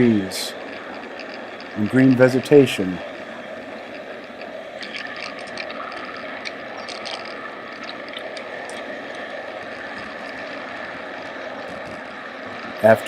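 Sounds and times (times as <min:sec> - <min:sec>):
wheels clicking on rails: 0:00.0 - 0:09.2.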